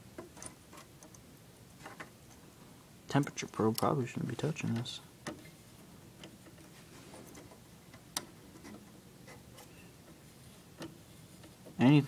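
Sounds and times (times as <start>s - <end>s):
faint background noise: 0.0s - 12.0s
light clicks and taps of handling: 3.2s - 5.5s.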